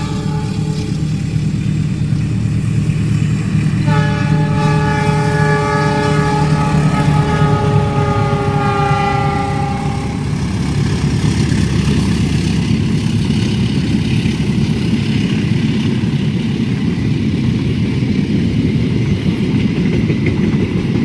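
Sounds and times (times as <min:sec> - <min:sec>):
locomotive horn blasts: 0:00.0 - 0:01.2, 0:03.8 - 0:10.4
train engine rumble: 0:00.0 - 0:21.0.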